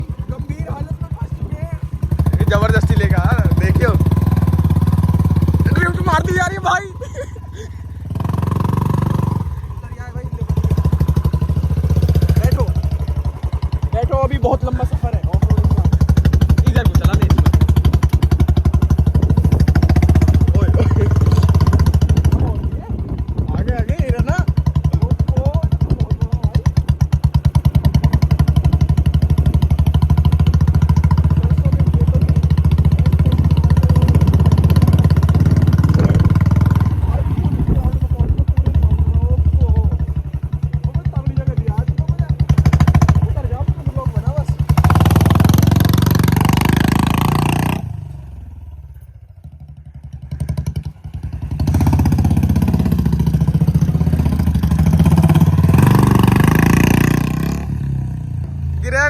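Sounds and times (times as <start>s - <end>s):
motorcycle engine thumping: 0.0s - 59.0s.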